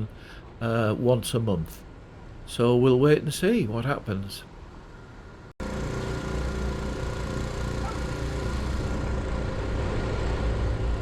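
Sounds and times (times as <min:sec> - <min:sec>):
engine idling: 0:05.6 - 0:11.0.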